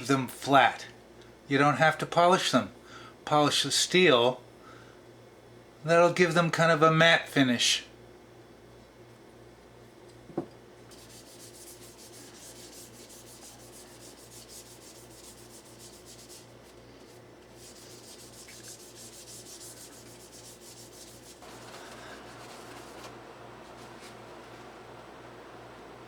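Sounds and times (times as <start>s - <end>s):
abrasive rubbing on plastic: 10.9s - 24.6s.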